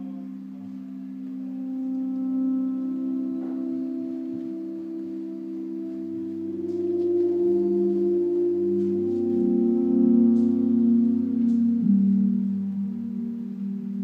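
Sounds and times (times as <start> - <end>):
ambient electronic drone music: 0.0 - 14.0.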